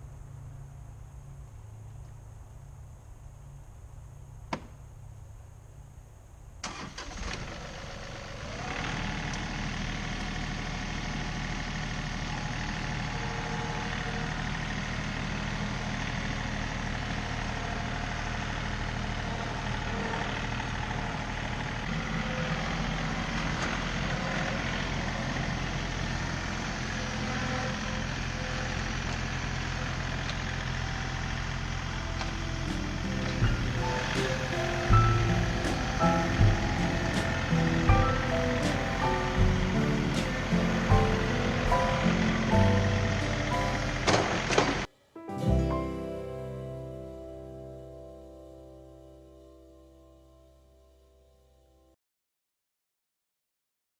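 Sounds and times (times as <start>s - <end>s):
tractor engine running: 0.0s - 49.3s
short rising whine: 20.8s - 49.1s.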